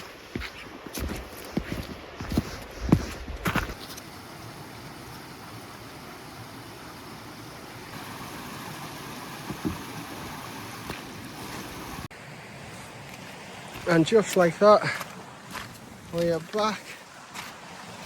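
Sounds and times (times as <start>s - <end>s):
mountain stream flowing: 0.0s - 18.0s.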